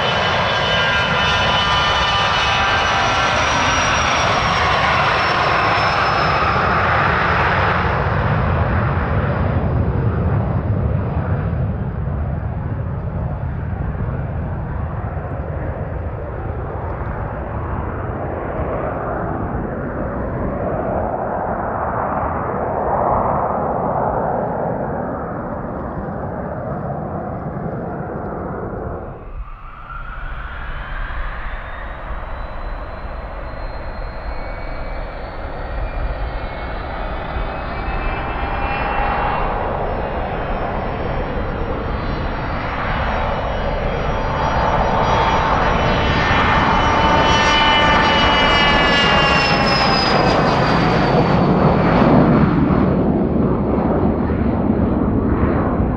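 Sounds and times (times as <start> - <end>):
jet engines roaring and whining: 0.0 - 12.8, 27.5 - 55.9.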